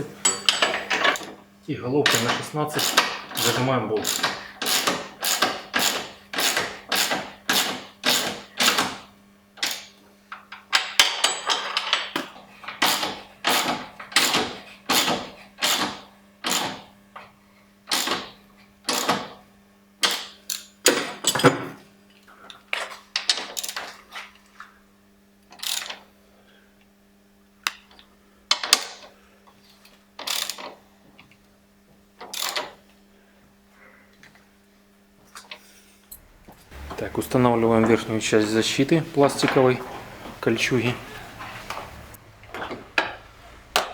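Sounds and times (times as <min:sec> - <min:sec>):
socket ratchet clicking: 0:02.1 - 0:08.9, 0:30.2 - 0:30.6, 0:32.3 - 0:32.7.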